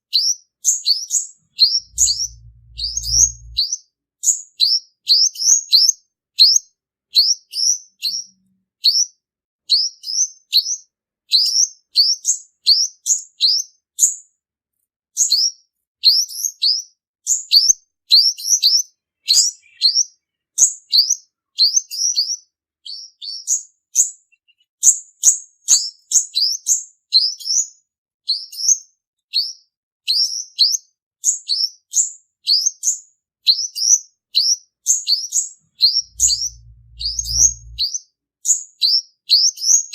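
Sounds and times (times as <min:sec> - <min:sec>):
sunbird singing high chirps: 0:01.0 - 0:03.7, 0:18.4 - 0:23.6, 0:24.2 - 0:24.8, 0:34.4 - 0:38.0.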